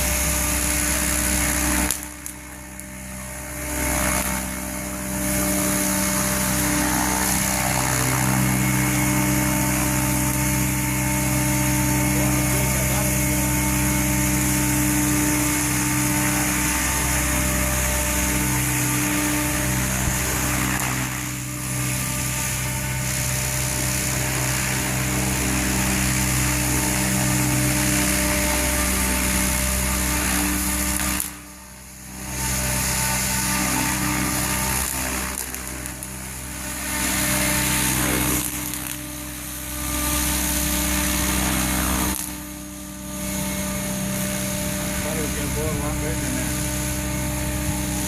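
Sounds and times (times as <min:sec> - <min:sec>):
model helicopter motor humming: 0:00.0 - 0:48.0
rotor wash hiss: 0:43.2 - 0:48.0.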